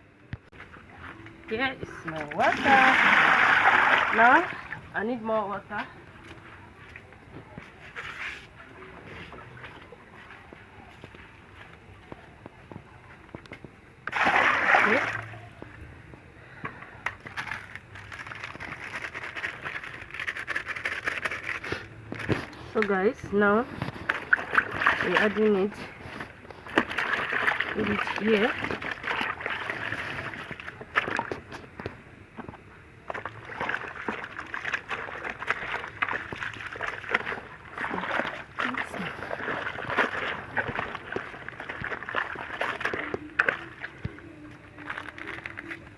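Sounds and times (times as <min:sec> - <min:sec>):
clothes splashing in water: 0:00.7 - 0:05.0, 0:14.0 - 0:15.6, 0:22.9 - 0:31.7, 0:33.0 - 0:45.8
clothes rustling and scraping: 0:06.2 - 0:10.4.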